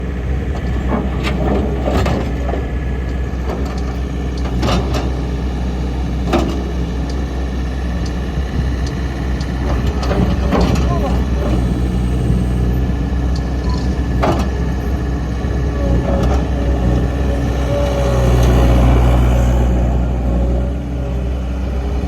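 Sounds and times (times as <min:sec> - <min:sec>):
loader engine running: 0:00.0 - 0:22.0.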